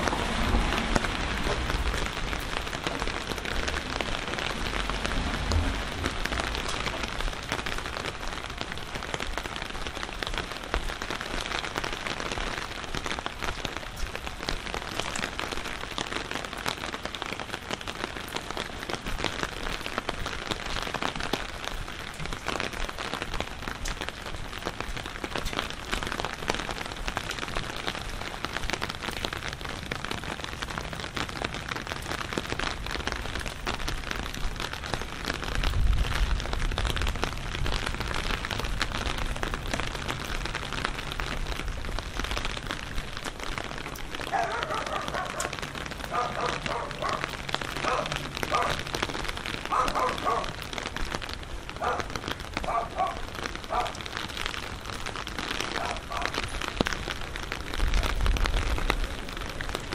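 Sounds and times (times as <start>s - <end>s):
low rumble: 0.0s - 2.6s, 3.7s - 7.4s
steady rain falling: 0.0s - 59.9s.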